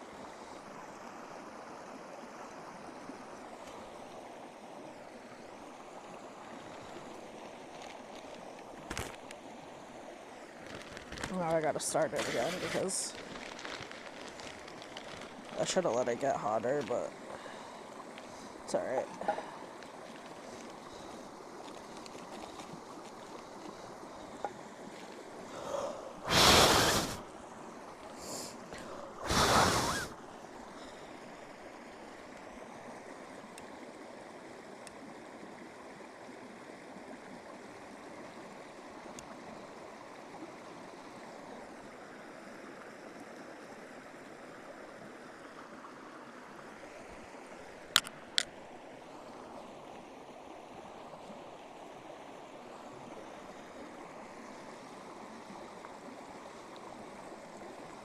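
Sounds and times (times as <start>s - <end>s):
steady rushing hiss: 10.6s - 31.4s
gusty bursts: 29.2s - 30.1s.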